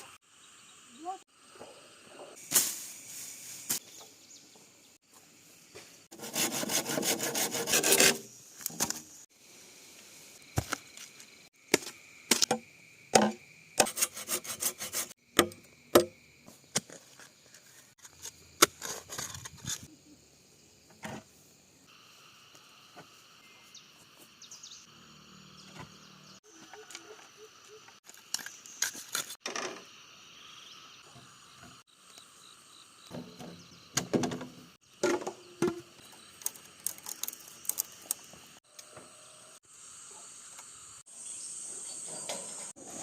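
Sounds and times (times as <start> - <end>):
bamboo being hand-sawn: 6.1 - 9.2, 13.8 - 15.2.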